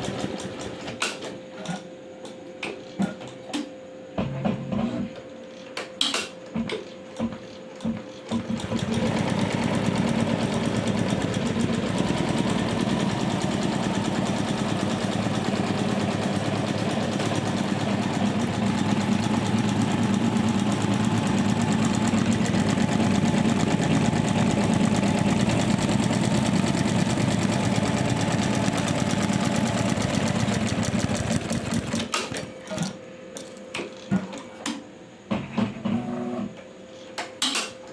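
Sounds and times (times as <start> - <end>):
embroidery machine rattling: 8.3 - 32.8.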